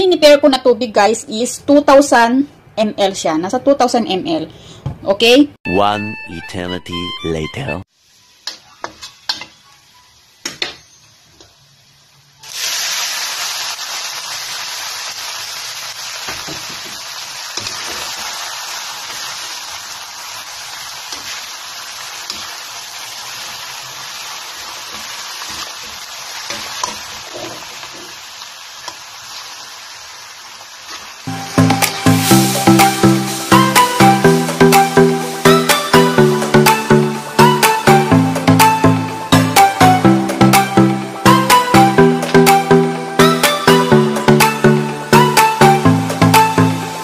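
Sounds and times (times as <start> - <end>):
garlic frying in a wok: 7.9 - 34.6
loud sizzle in hot oil: 7.9 - 37.3.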